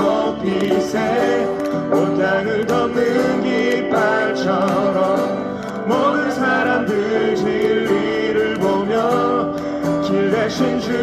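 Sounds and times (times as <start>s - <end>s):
guitar accompaniment: 0.0s - 11.0s
person singing worship song: 0.0s - 11.0s.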